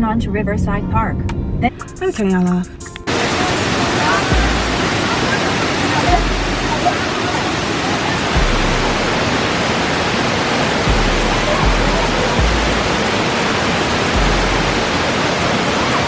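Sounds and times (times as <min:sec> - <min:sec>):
waterfall roaring: 0:03.1 - 0:16.0.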